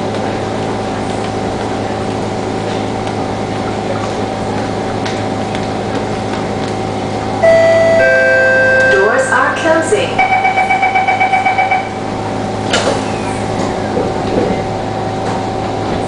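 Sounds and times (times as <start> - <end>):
train carriage hum: 0.0 - 16.0
two-tone door chime: 7.4 - 9.2, 10.2 - 12.0.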